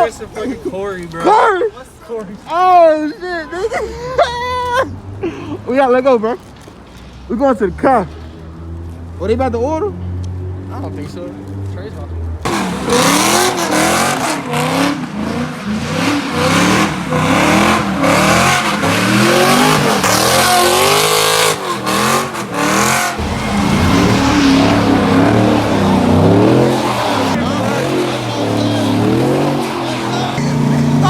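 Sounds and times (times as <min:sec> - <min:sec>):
tires squealing: 0:12.4 - 0:31.0
car engine revving hard: 0:12.5 - 0:31.0.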